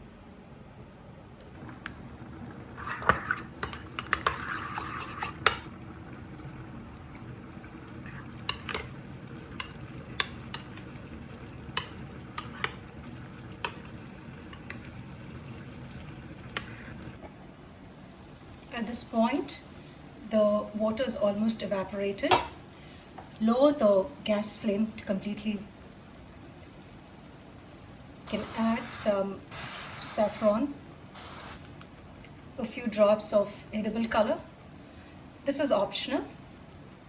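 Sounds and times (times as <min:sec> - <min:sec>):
utensil scraping and stirring: 0:02.6 - 0:05.7, 0:08.1 - 0:10.9, 0:11.8 - 0:12.8.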